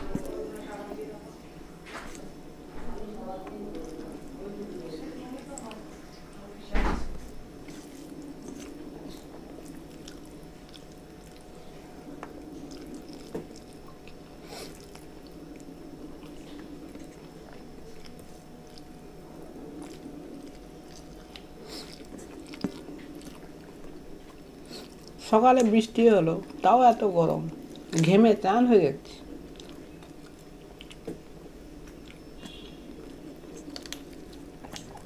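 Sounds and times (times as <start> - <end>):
room hum: 0.0 - 35.0
person chewing: 7.2 - 25.7, 29.3 - 35.0.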